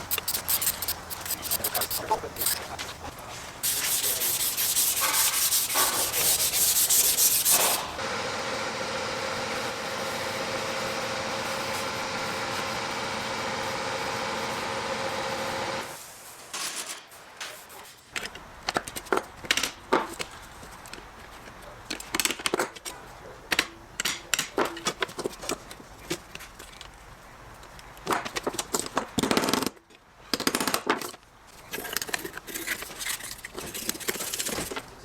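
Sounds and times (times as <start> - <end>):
rapid sanding strokes on metal: 0.0 - 7.9
sander whirring: 4.0 - 16.0.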